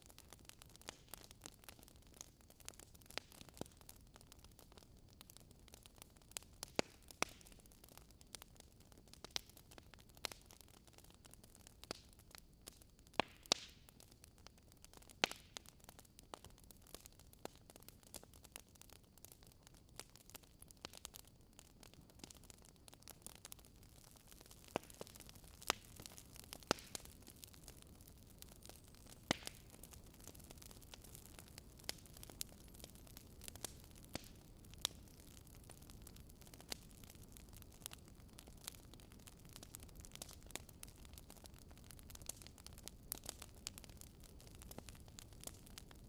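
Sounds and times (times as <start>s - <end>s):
campfire crackling and popping: 0.0s - 46.0s
faint low hiss: 0.0s - 46.0s.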